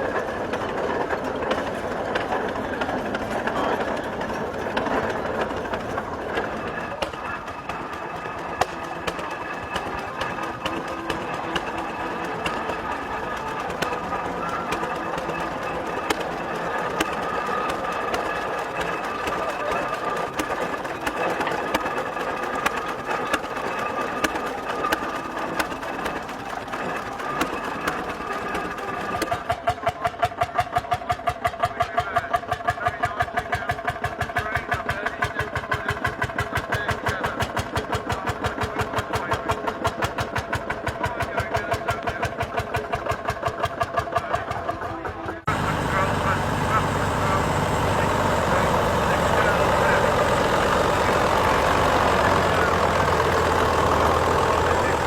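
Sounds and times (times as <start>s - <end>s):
engine running with even beat: 0.0s - 28.8s, 45.4s - 55.0s
indistinct voices: 0.0s - 29.2s, 44.1s - 55.0s
machinery noise: 0.0s - 30.1s, 44.1s - 55.0s.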